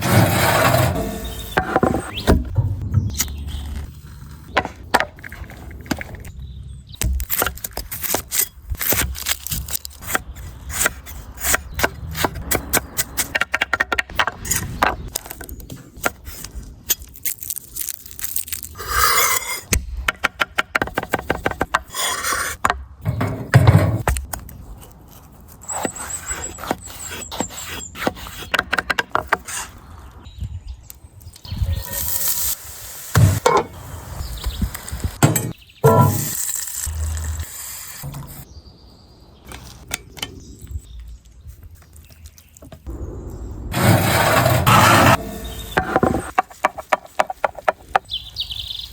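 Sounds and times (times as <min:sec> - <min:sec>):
knocks cracks and scrapes: 0:07.0 - 0:29.8.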